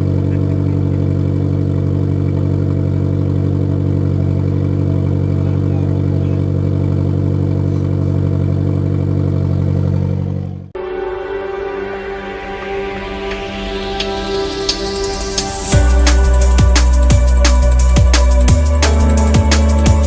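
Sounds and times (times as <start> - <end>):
car engine idling: 0.0 - 10.8, 11.8 - 20.0
music: 10.8 - 20.0.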